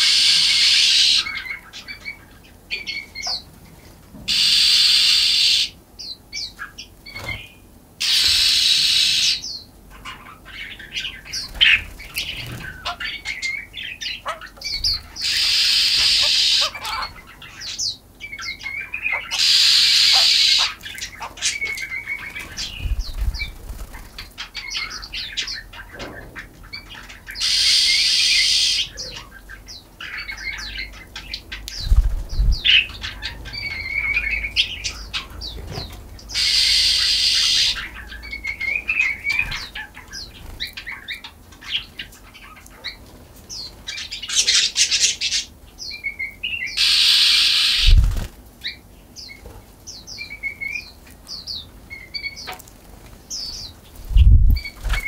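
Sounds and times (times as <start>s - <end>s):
small birds chirping: 0.0s - 55.0s
wings flapping: 22.2s - 24.4s, 31.7s - 32.9s, 47.6s - 48.4s, 54.0s - 55.0s.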